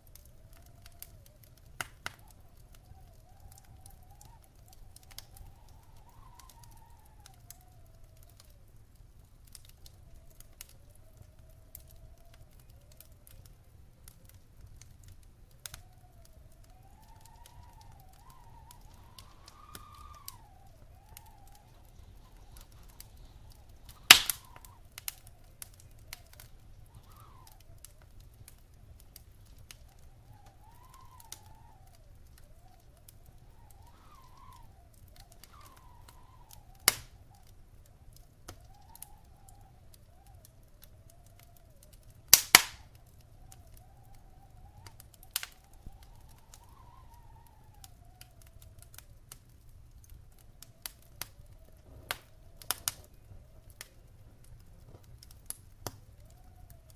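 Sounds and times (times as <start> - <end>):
wood fire crackling: 0.0 - 56.9
loud sharp pops: 18.2 - 25.2, 36.9 - 37.1, 42.3 - 43.0.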